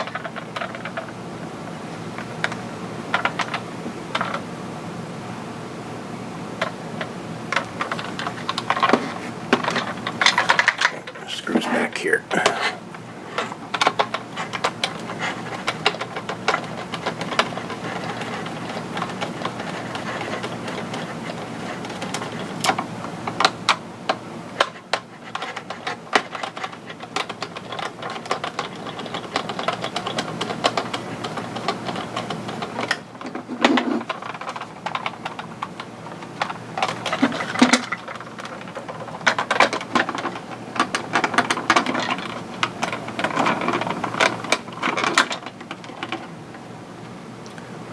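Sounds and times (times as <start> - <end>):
plastic parts clicking: 13.4 - 22.8, 24.6 - 46.2.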